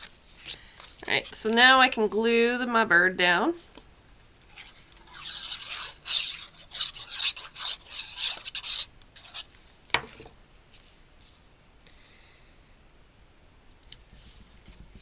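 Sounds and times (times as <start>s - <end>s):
paper scratching and rubbing: 4.4s - 9.5s.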